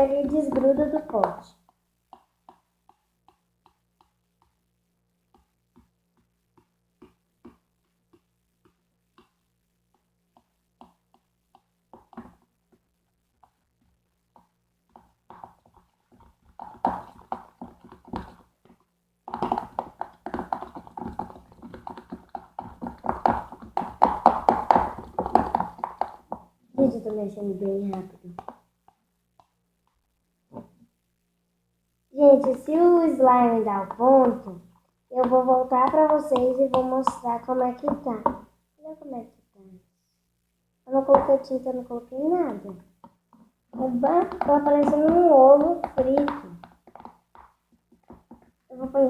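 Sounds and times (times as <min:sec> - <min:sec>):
slime clicking and squelching: 0:14.3 - 0:28.7, 0:42.6 - 0:49.0.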